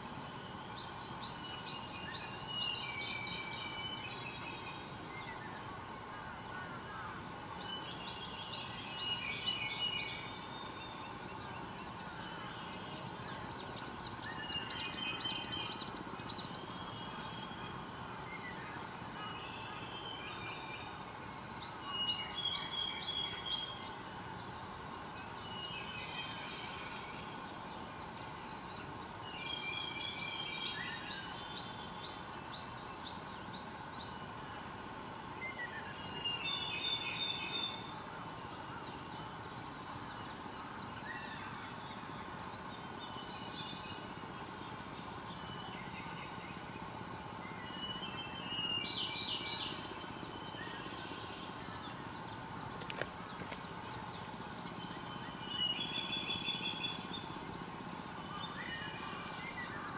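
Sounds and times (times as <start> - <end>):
faint background hum: 0.0 - 59.9
songbirds calling: 0.0 - 59.9.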